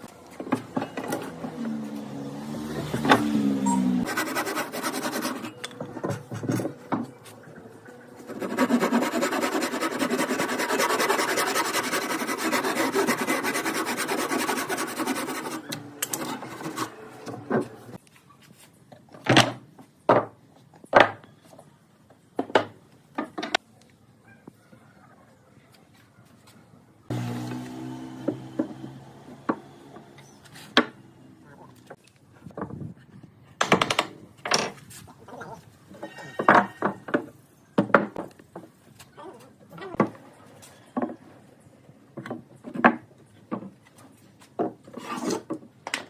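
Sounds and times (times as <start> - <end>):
hand tool scraping wood: 4.0 - 5.6, 8.2 - 17.8, 44.8 - 45.6.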